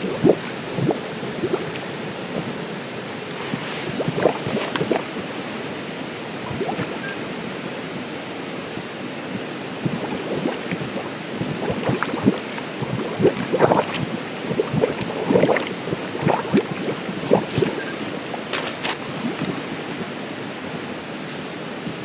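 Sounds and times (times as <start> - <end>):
running water gurgling and splashing: 0.0 - 7.2, 9.7 - 20.1.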